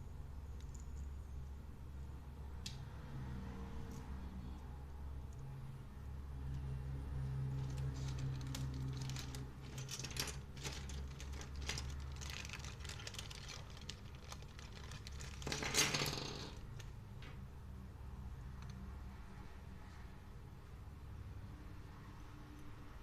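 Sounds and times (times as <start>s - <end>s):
plastic crinkling: 7.6s - 16.4s
packaging rustle: 7.6s - 16.5s.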